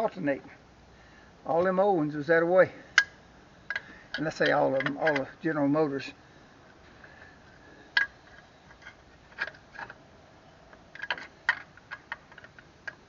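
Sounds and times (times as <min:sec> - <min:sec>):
hand tools clicking and knocking: 0:03.7 - 0:05.4.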